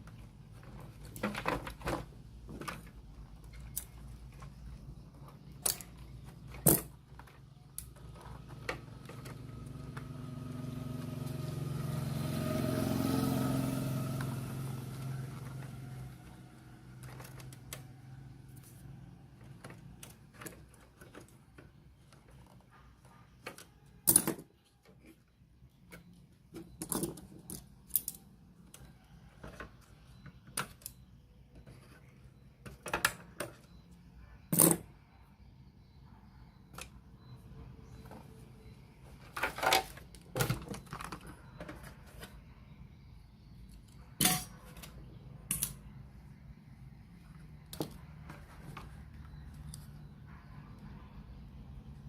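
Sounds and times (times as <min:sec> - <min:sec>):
small tools clicking and clattering: 0:00.1 - 0:10.2, 0:15.4 - 0:31.0, 0:43.7 - 0:46.0.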